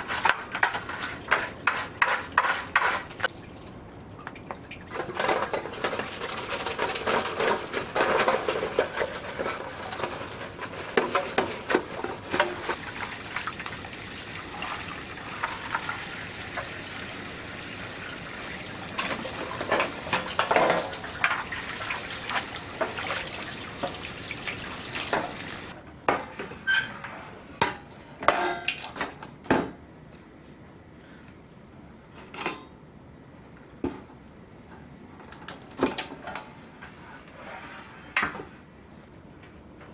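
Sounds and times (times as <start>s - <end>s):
steady hiss: 12.7s - 25.8s
metal cookware clattering: 14.5s - 25.7s.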